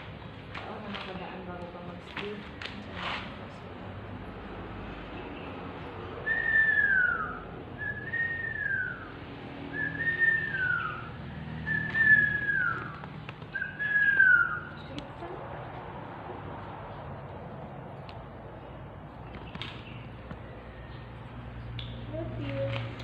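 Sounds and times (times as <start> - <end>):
whistled notes sliding down: 9.8 - 12.9.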